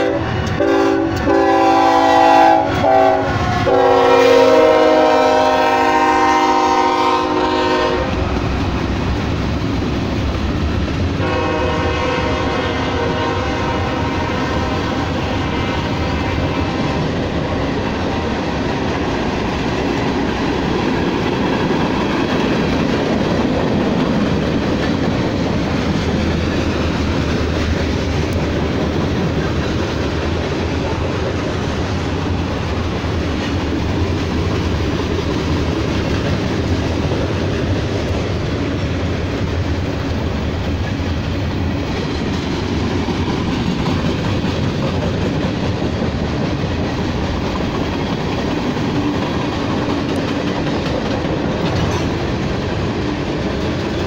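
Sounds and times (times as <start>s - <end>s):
train horn: 0.0s - 8.3s, 11.2s - 17.4s
train wheels rumbling on rails: 0.0s - 54.0s.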